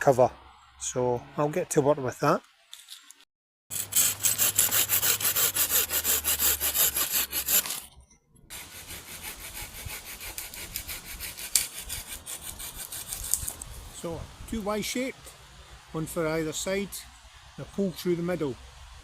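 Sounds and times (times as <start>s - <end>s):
hand saw cutting branch: 3.7s - 7.9s, 8.5s - 13.8s.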